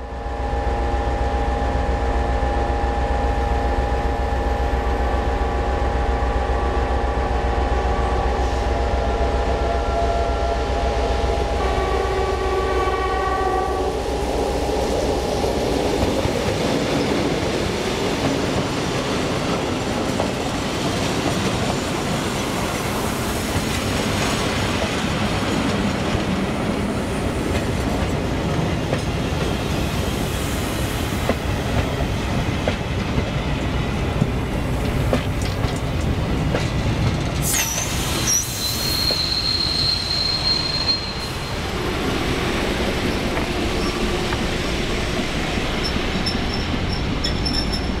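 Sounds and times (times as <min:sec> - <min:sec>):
train coaches rumbling past: 0:00.0 - 0:48.0
high-pitched wheel squeal: 0:37.5 - 0:41.6, 0:46.2 - 0:47.9.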